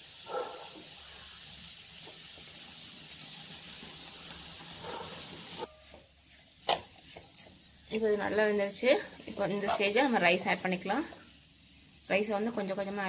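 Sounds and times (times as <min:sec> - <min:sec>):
vegetables and egg sizzling: 0:00.0 - 0:13.0.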